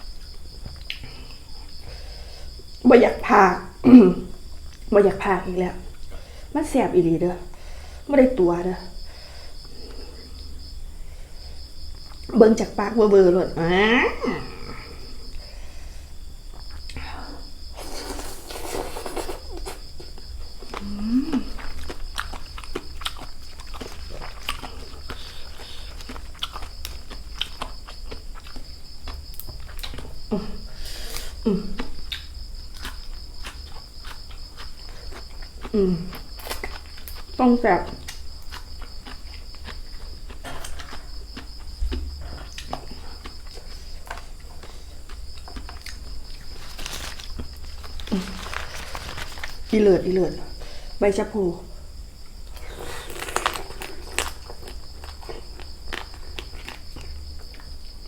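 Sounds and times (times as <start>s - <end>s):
chewing and crunching food: 0.0s - 6.4s, 8.8s - 12.3s, 13.6s - 51.0s, 51.9s - 58.0s
crickets chirring: 0.0s - 58.0s
wet mouth clicks: 17.9s - 19.9s, 31.1s - 32.3s
person humming: 20.8s - 21.6s.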